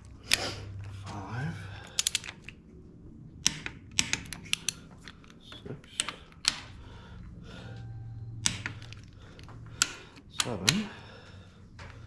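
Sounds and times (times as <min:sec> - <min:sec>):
wrench clicking on bolt: 0:02.0 - 0:02.5, 0:03.4 - 0:04.8.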